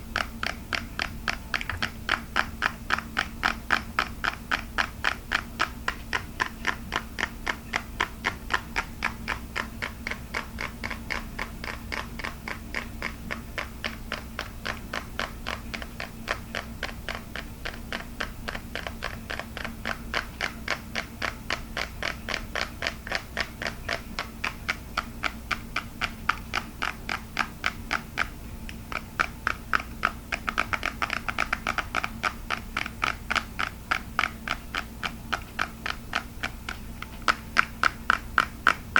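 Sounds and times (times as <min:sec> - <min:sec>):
fast tapping on hard plastic: 0:00.0 - 0:38.9.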